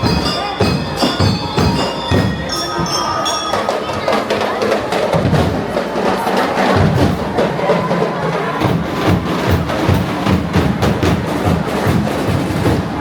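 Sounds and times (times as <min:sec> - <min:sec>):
loud music with driving drumbeat: 0:00.0 - 0:02.6, 0:08.6 - 0:13.0
sharp percussion strikes: 0:00.0 - 0:13.0.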